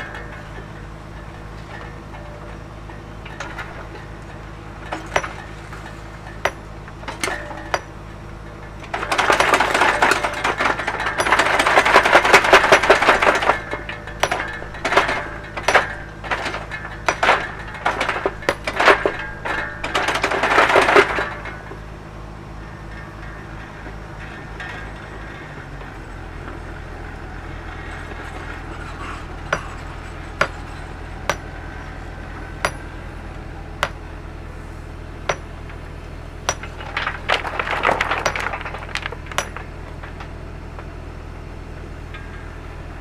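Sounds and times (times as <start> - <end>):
excavator engine running: 0.0 - 43.0
stone knocks: 36.5 - 39.7
stones clattering and scraping: 36.5 - 39.8.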